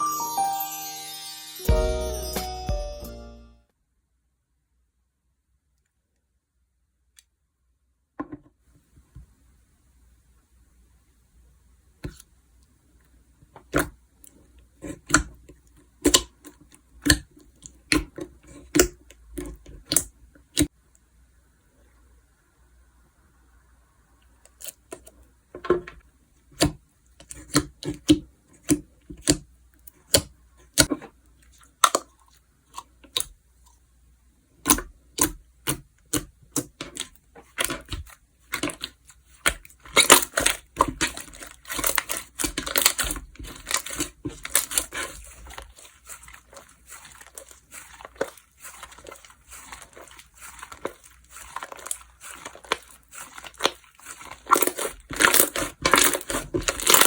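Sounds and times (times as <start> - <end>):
slime popping and crackling: 16.0 - 20.7, 34.6 - 57.0.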